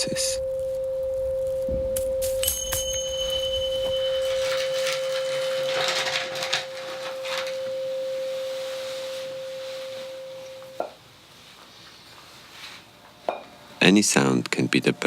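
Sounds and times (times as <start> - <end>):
pure tone: 0.0 - 11.0
hissy rustles: 2.2 - 13.0.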